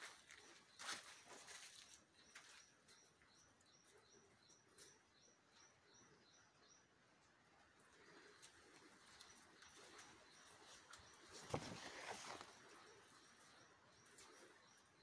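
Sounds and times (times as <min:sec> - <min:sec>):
soft rustles: 0:10.6 - 0:12.8.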